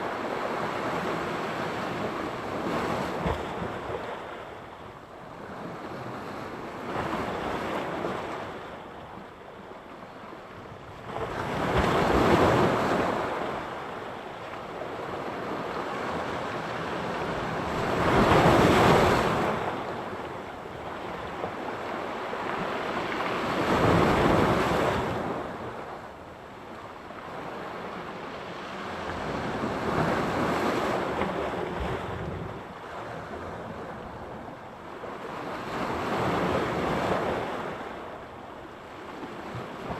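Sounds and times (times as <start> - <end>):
waves breaking on shore: 11.0 - 39.9.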